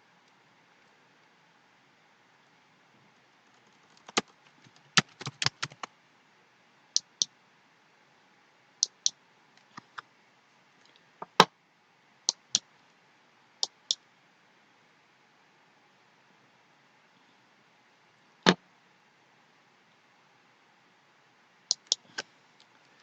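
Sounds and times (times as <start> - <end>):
computer mouse clicks: 3.5 - 5.9, 8.8 - 10.0, 13.6 - 14.0, 21.7 - 22.3.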